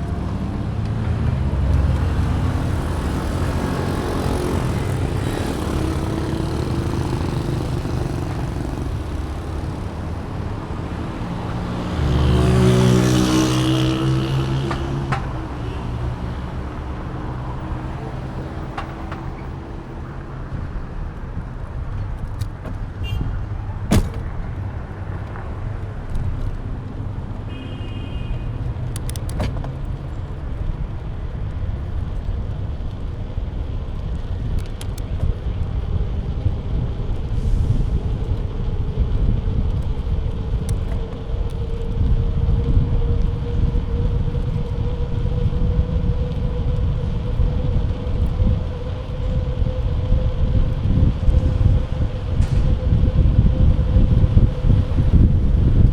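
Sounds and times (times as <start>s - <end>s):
road noise rumbling: 0.0s - 55.9s
wind on microphone: 28.3s - 55.9s.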